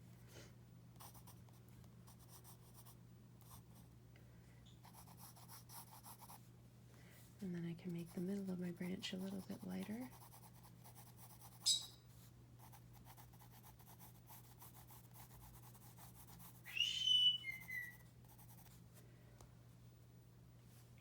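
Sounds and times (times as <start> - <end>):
pencil scratching on paper: 1.0 - 3.6, 4.8 - 6.4, 8.0 - 11.6, 12.6 - 16.7, 17.6 - 18.8
parrot chirp: 11.6 - 12.0, 16.7 - 18.0
parrot whistled call: 11.6 - 12.0, 16.7 - 18.0.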